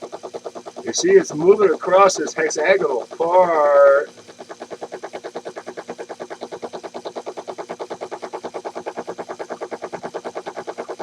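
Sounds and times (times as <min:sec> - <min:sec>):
lathe motor rapid clicking: 0:00.0 - 0:11.0.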